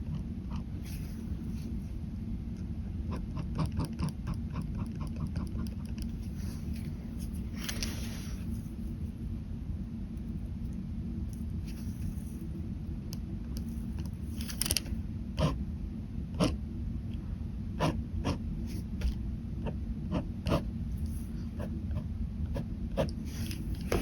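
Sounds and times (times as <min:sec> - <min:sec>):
steady low hum: 0:00.0 - 0:24.0
pen scratching on paper: 0:03.1 - 0:06.1, 0:15.4 - 0:15.6, 0:16.4 - 0:16.6, 0:17.8 - 0:24.0.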